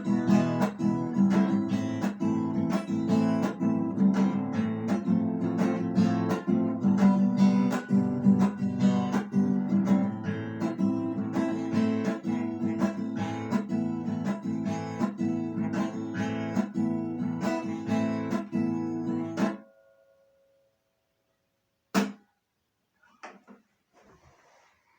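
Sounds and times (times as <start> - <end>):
acoustic guitar strumming chords: 0.0 - 19.7.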